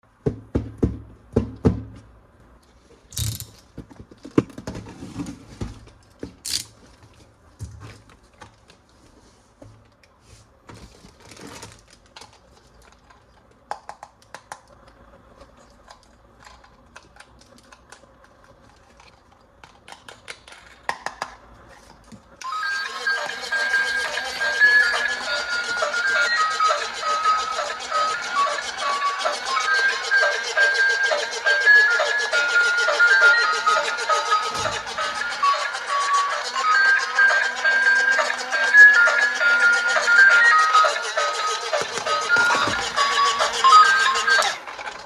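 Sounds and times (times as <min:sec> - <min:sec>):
plastic toy parts clicking: 0:03.1 - 0:03.6, 0:06.4 - 0:06.7.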